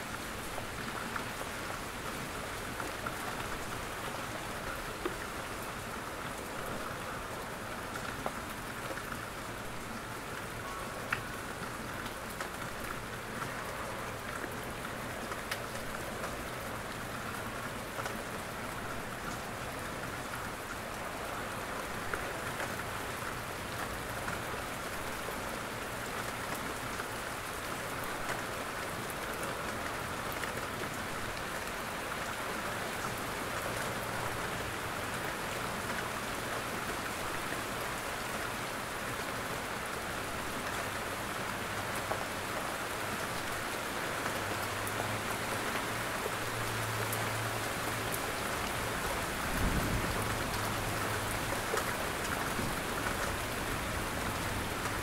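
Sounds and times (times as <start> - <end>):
rain on foliage and roof: 0.0 - 55.0
raindrop ticks: 10.3 - 20.5.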